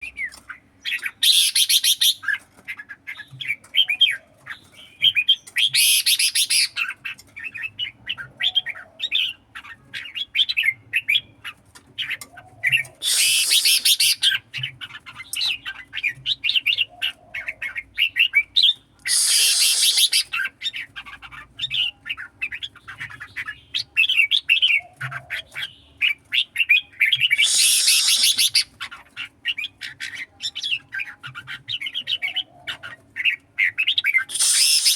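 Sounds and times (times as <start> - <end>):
bulbuls chirping song: 0.0 - 34.9
harsh bird calls: 12.1 - 18.5, 19.1 - 20.9, 21.6 - 31.1, 31.8 - 34.9.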